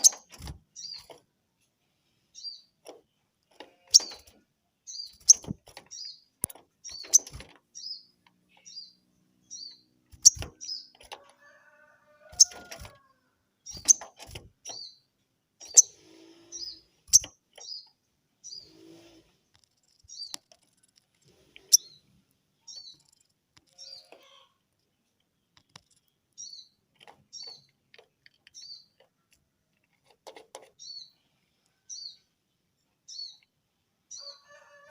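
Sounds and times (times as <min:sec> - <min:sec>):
bird chirping: 0:00.0 - 0:01.2, 0:02.3 - 0:11.1, 0:12.3 - 0:29.4, 0:30.6 - 0:34.6
sharp bird clicks: 0:10.1 - 0:11.1, 0:13.7 - 0:14.9, 0:17.1 - 0:17.9, 0:19.6 - 0:21.9.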